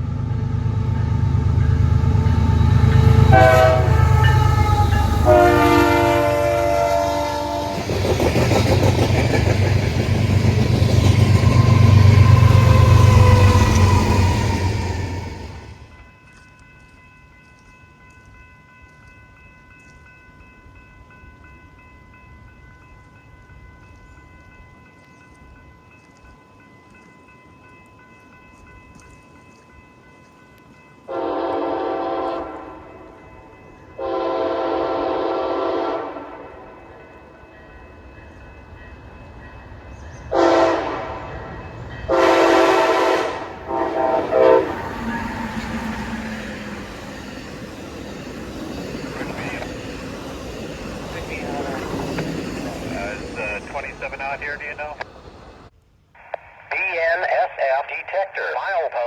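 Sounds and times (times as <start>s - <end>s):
locomotive air horn blasts: 3.2s - 7.8s, 31.1s - 32.8s, 34.0s - 36.4s, 40.3s - 41.2s, 42.1s - 45.0s.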